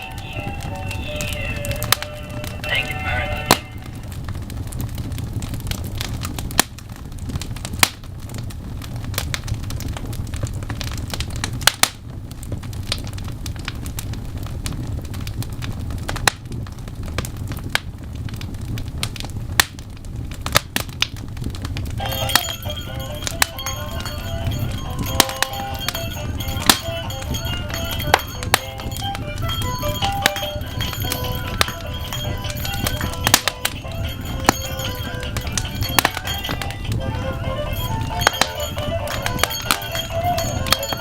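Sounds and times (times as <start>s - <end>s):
music with pitched tones: 0.0s - 4.2s, 22.0s - 41.0s
wood fire crackling and popping: 0.0s - 41.0s.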